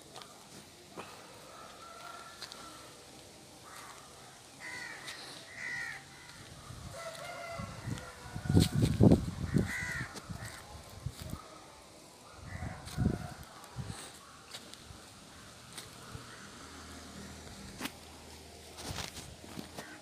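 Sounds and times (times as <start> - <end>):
wind buffeting microphone: 7.6 - 11.4.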